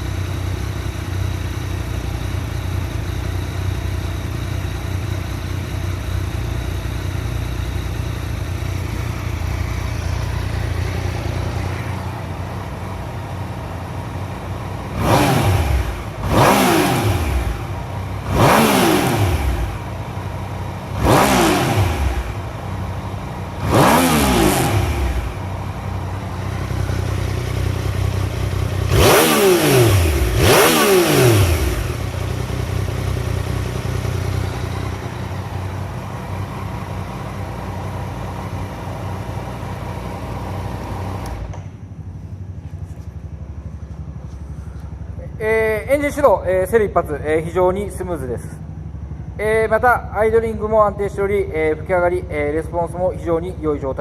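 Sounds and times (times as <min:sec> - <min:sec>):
motorcycle engine idling: 0:00.0 - 0:54.0
engine revving: 0:07.6 - 0:41.7.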